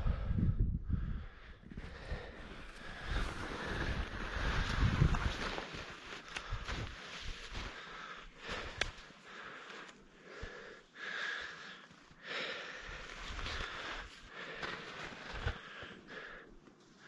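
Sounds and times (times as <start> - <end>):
skis scraping over snow: 2.2 - 7.9, 13.1 - 15.9.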